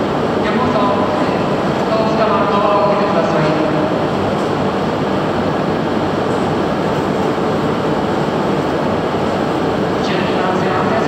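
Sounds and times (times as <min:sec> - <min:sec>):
train running noise: 0:00.0 - 0:11.0.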